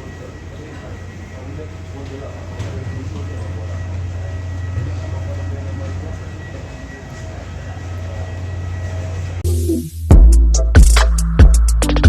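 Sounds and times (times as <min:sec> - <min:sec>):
faint steady tones: 0:00.0 - 0:09.4
airliner cabin drone: 0:00.0 - 0:09.7.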